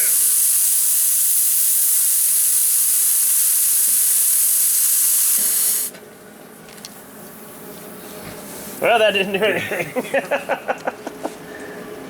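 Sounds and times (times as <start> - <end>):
gas torch flame hissing: 0.0 - 6.0, 6.9 - 10.4.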